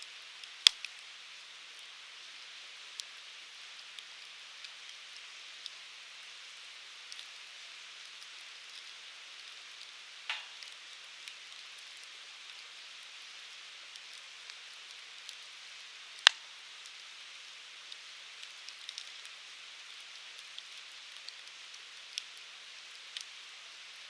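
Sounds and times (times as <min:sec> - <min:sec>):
fire crackling: 0:00.2 - 0:24.0
sharp loud pop: 0:10.3 - 0:10.6.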